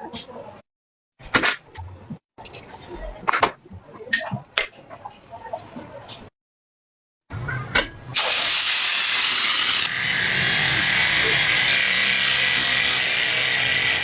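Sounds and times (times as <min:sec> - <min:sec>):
handheld power tool running: 0:08.2 - 0:14.0.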